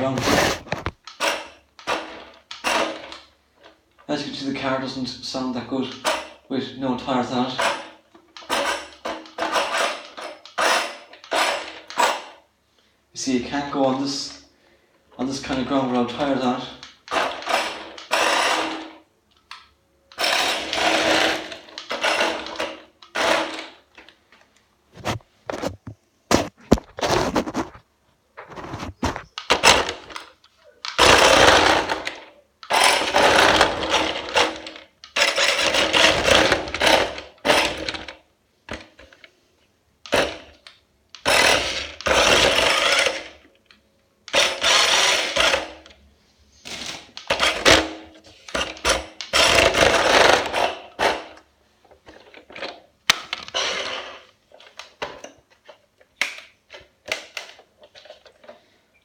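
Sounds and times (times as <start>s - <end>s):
wheel rims rattling and grinding: 7.5s - 12.3s, 17.1s - 19.0s, 48.6s - 51.4s
toy car motor whine: 17.1s - 18.9s, 31.0s - 32.0s, 41.2s - 43.4s, 44.3s - 45.8s, 53.5s - 54.2s.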